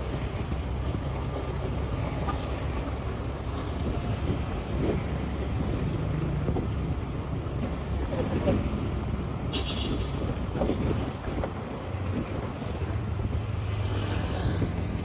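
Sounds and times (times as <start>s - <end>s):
wind on microphone: 3.5s - 6.9s, 8.1s - 15.0s.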